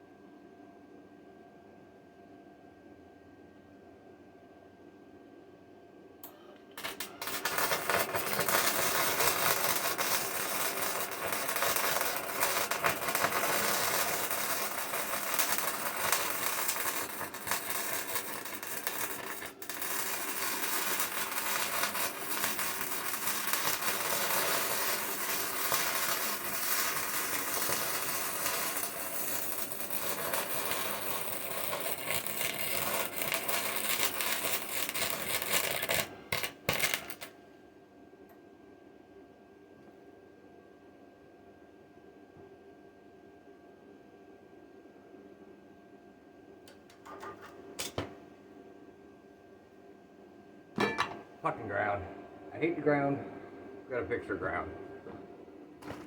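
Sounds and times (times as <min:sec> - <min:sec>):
electric arc welding crackle: 0:06.8 - 0:37.3.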